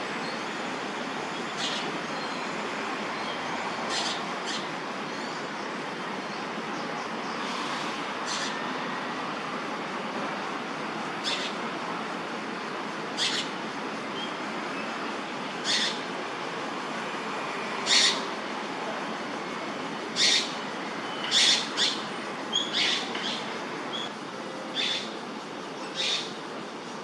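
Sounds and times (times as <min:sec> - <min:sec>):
steady background hiss: 0:00.0 - 0:27.0
bird raspy calls: 0:11.2 - 0:11.6, 0:15.6 - 0:16.0, 0:17.9 - 0:18.3, 0:20.2 - 0:20.6, 0:21.2 - 0:24.1, 0:24.8 - 0:25.2, 0:25.9 - 0:26.4.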